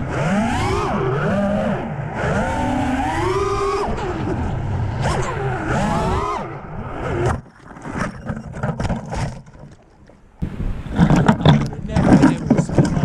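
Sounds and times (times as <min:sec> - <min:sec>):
drone motors whining: 0:00.0 - 0:07.4
scrapes and knocks: 0:07.3 - 0:10.2, 0:10.9 - 0:13.0.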